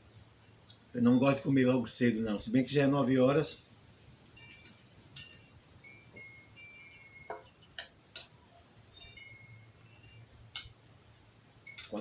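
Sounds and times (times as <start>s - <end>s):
high short tinkling tones: 4.0s - 12.0s.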